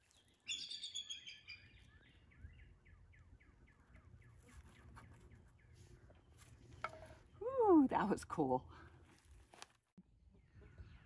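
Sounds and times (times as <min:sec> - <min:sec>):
songbirds high chirps: 0:00.0 - 0:06.5.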